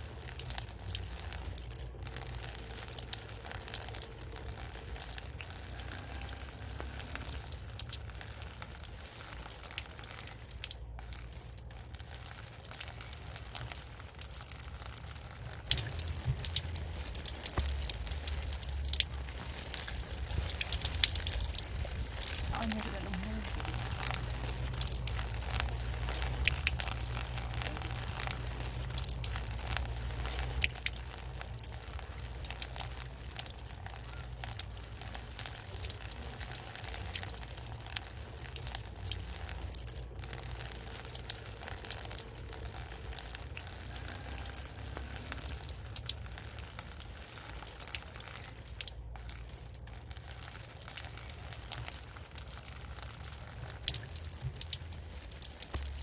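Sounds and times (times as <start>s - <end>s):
rain falling steadily: 0.0s - 56.0s
low rumble: 13.8s - 33.0s.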